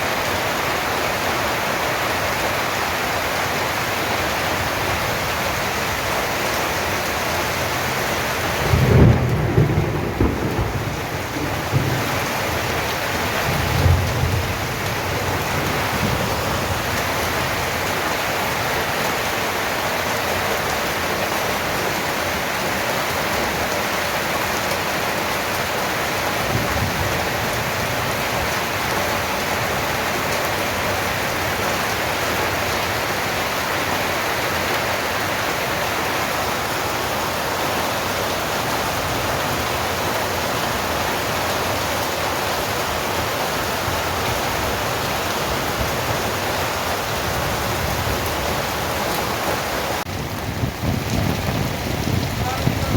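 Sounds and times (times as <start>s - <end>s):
heavy rain falling: 0.0s - 52.9s
thunder rumbling: 7.4s - 18.0s, 42.4s - 52.9s.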